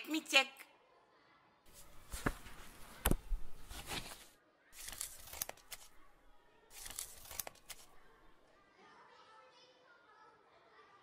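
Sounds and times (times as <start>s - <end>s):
paper pages rustling: 1.7s - 8.4s.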